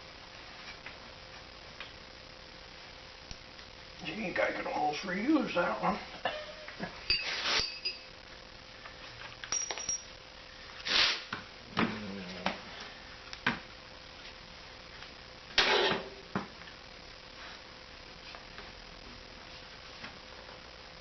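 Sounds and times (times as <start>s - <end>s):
metallic clinks and taps: 9.4s - 10.1s.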